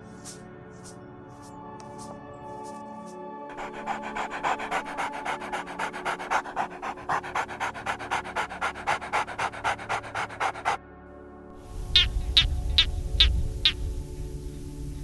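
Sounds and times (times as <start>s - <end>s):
background music: 0.0s - 15.0s
dog panting rapidly: 3.5s - 10.8s.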